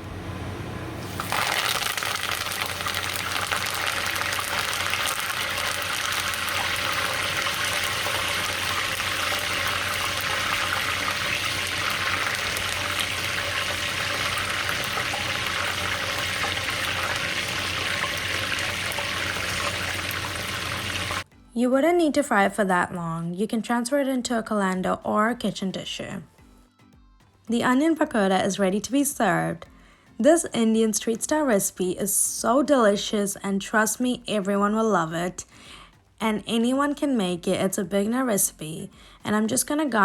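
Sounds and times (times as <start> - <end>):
leaves sizzling in hot oil: 1.0 - 21.3.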